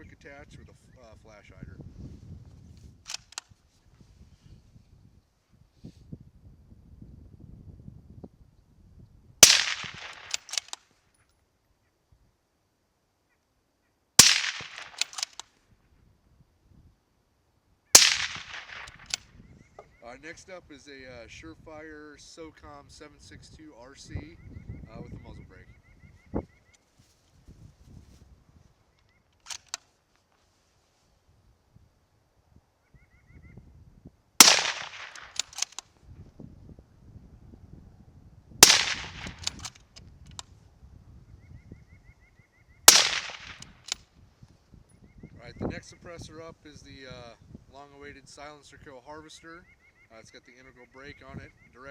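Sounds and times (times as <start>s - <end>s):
short clicks: 3.0s - 3.5s, 9.8s - 10.8s, 14.4s - 15.5s, 29.0s - 29.9s, 38.6s - 40.5s
faint sharp cracks: 3.1s - 3.5s, 9.4s - 11.0s, 14.2s - 15.6s, 18.0s - 19.3s, 29.0s - 30.4s, 34.4s - 35.9s, 38.6s - 40.5s, 42.9s - 44.0s
rifle shots with echo: 9.4s - 10.8s, 14.2s - 15.4s, 18.0s - 19.2s, 34.4s - 35.8s, 38.6s - 39.7s, 42.9s - 43.9s.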